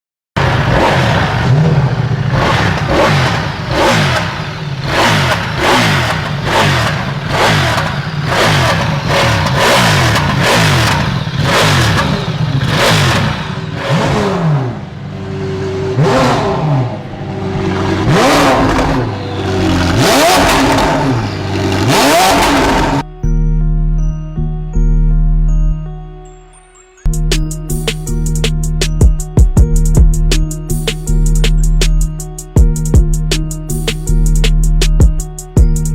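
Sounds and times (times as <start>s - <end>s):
motorcycle engines revving: 0.4s - 23.0s.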